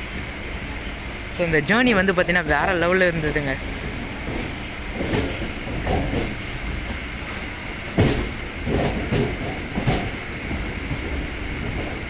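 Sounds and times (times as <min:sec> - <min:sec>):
train knocks: 0:00.0 - 0:12.0
train rumble: 0:00.0 - 0:12.0.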